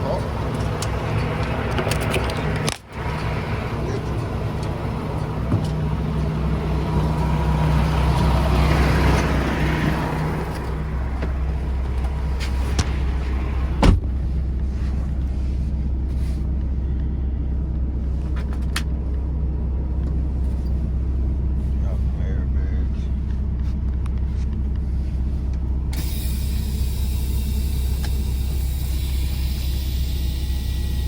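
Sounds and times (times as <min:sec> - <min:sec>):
diesel truck engine humming: 0:00.0 - 0:31.0
air hissing: 0:25.9 - 0:31.0.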